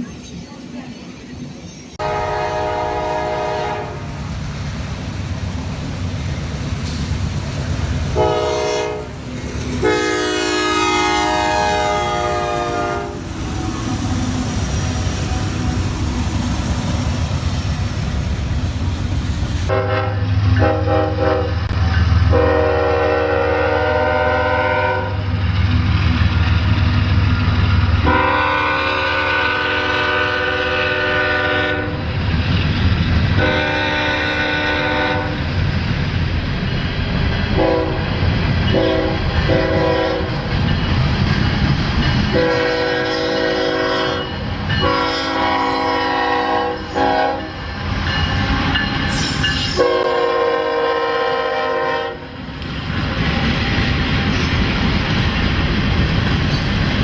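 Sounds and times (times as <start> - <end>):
train rumble and rail noise: 0.0 - 57.0
locomotive air horn blasts: 2.0 - 4.1, 8.2 - 9.2, 9.8 - 13.2, 19.7 - 25.2, 28.0 - 32.0, 33.4 - 35.4, 37.6 - 38.0, 38.8 - 40.3, 42.3 - 47.6, 49.7 - 52.4.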